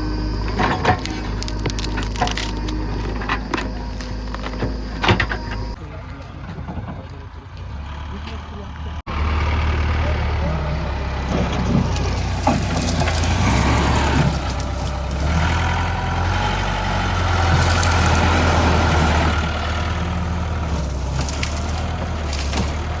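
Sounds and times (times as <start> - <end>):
high-pitched whine: 0.0 - 5.8
diesel engine running: 0.0 - 23.0.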